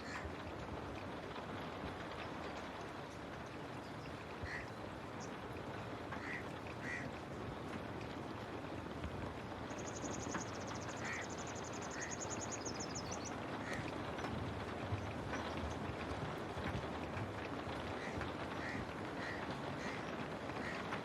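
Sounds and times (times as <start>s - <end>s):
steady rain falling: 0.0s - 21.0s
birds calling: 9.6s - 14.0s.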